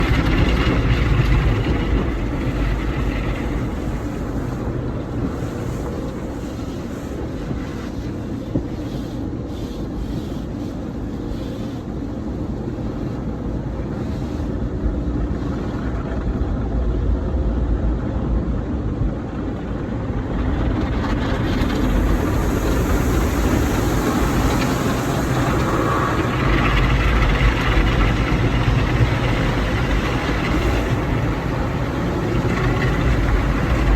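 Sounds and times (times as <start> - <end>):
car wash water spray and machinery: 0.0 - 33.9.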